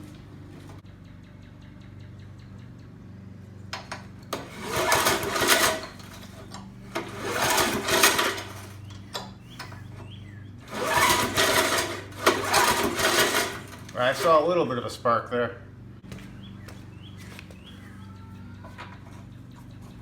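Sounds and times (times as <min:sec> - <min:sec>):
mower engine cranking on pull cord: 0:03.8 - 0:14.8.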